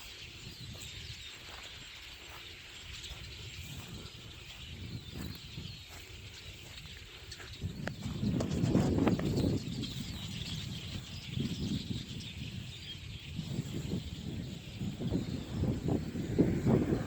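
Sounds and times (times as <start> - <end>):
large flock of birds chattering: 0.0 - 17.0
wind buffeting microphone: 0.0 - 17.0.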